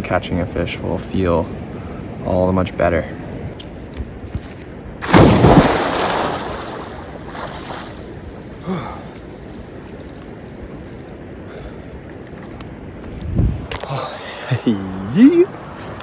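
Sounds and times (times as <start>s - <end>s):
person splashing into water: 5.0s - 8.6s
water churning: 5.0s - 10.6s.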